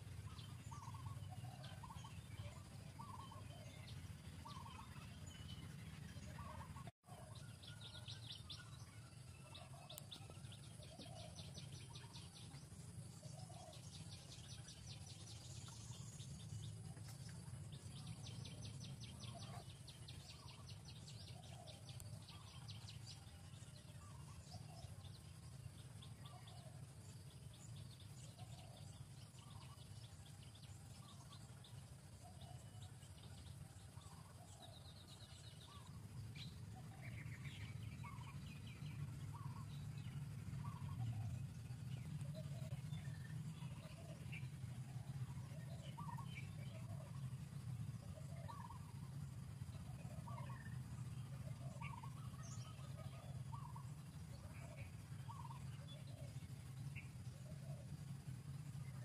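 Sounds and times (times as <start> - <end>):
bird calls: 0.0 - 59.0
steady low hum: 0.0 - 59.0.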